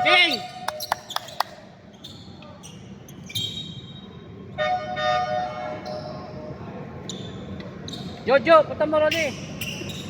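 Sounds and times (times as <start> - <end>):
sneakers squeaking: 0.1 - 4.3, 7.0 - 8.3, 9.1 - 10.0.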